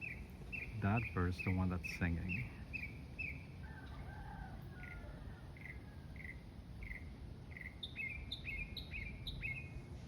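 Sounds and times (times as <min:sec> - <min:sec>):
songbird singing high notes: 0:00.0 - 0:03.4, 0:05.6 - 0:09.8.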